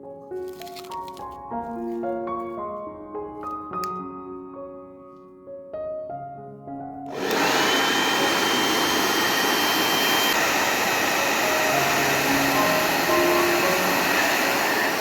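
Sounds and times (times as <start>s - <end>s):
hair dryer running: 7.1s - 15.0s.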